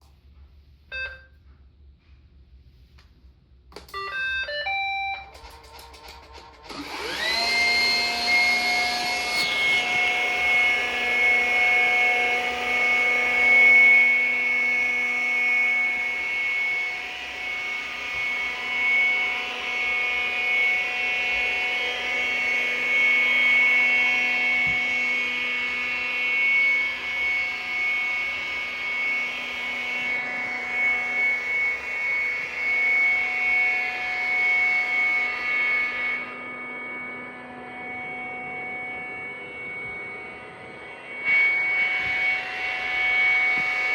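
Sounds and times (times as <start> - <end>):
robot motors whining and humming: 5.4 - 36.3.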